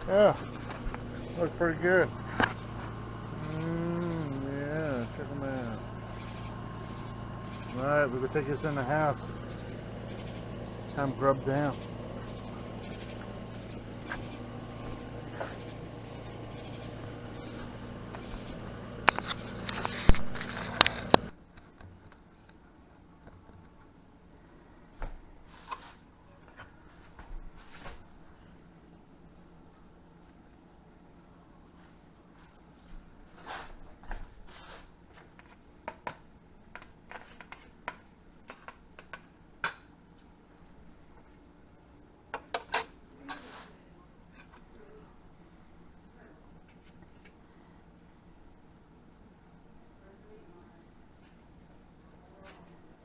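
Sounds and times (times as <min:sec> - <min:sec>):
low hum: 0:00.0 - 0:21.3.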